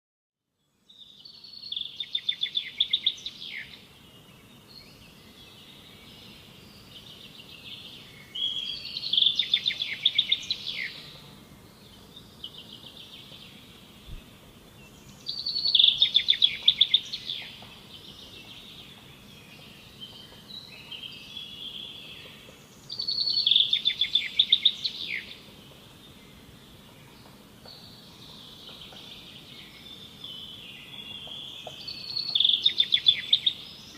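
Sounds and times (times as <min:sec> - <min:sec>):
quiet bird twittering: 0:00.8 - 0:33.9
songbird trilling: 0:15.3 - 0:17.6, 0:30.4 - 0:33.9.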